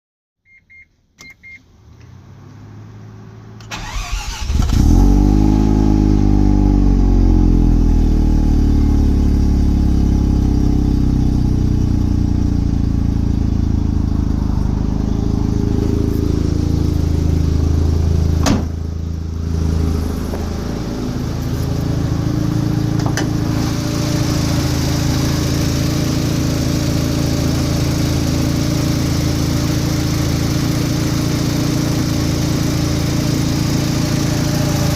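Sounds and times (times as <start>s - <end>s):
rotary engine starting and idling: 3.6s - 6.7s.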